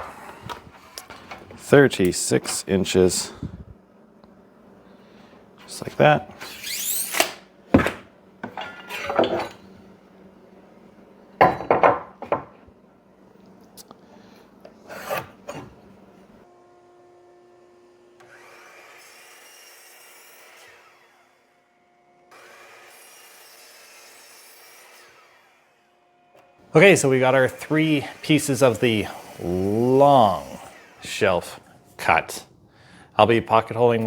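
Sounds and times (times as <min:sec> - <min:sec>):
saw cutting through wood: 0:05.7 - 0:07.4, 0:18.2 - 0:21.6, 0:22.3 - 0:31.7.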